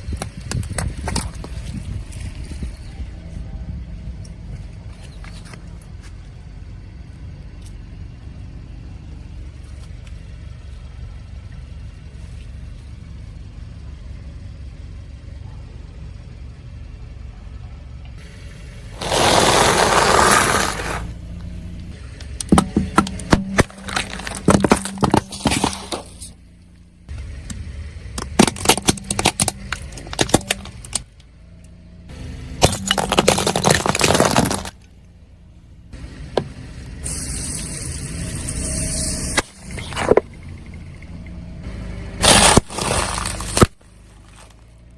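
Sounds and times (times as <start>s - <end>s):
car engine and tyres rumbling: 0.0s - 44.9s
rapid cracking and breaking: 19.0s - 21.1s, 22.2s - 26.2s, 28.2s - 31.0s, 32.6s - 34.8s, 42.2s - 44.6s
tyres crunching over objects: 19.0s - 21.1s, 21.9s - 26.4s, 28.2s - 31.1s, 32.6s - 35.0s, 39.4s - 40.4s, 42.2s - 44.9s.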